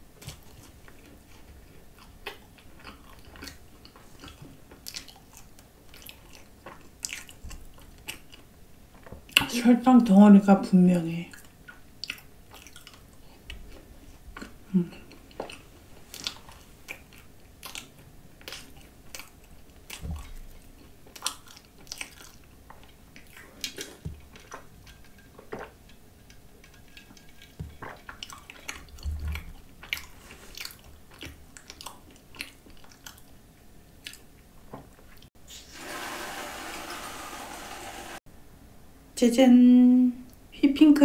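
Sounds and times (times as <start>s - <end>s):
close chewing with mouth smacks: 0.2s - 9.4s, 11.3s - 33.4s, 34.0s - 34.4s.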